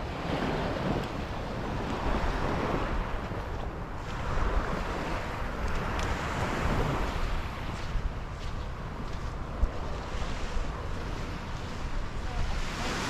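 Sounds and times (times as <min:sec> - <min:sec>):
wind buffeting microphone: 0:00.0 - 0:13.0
surf breaking on beach: 0:09.8 - 0:13.0.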